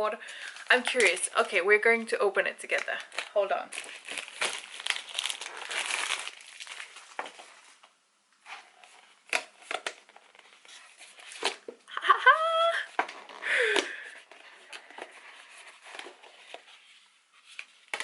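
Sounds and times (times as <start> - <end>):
packaging rustles and clicks: 0.2 - 1.5, 2.7 - 7.9
plastic packaging crinkling and tearing: 0.2 - 1.9, 2.6 - 7.8.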